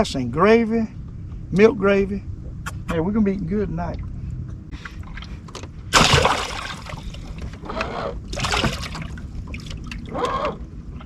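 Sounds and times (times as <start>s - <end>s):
steady low rumble: 0.0s - 11.0s
water splashing: 5.1s - 7.6s, 8.3s - 10.1s.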